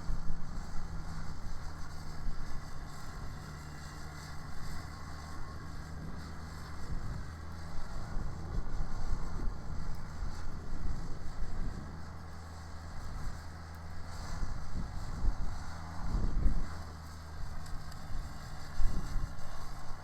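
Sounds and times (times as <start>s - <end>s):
snowblower running: 0.0s - 20.0s
tractor diesel engine running: 0.0s - 20.0s.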